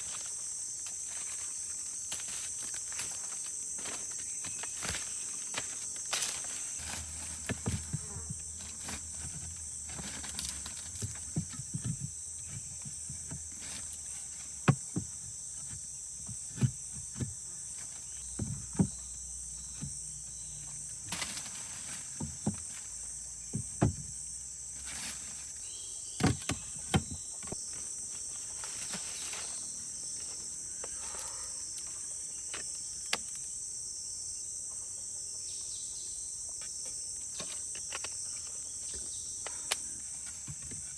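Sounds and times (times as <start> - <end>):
forest insects chorus: 0.0 - 40.9
sharp knocks and thumps: 6.8 - 20.1, 22.0 - 24.2, 26.2 - 27.6.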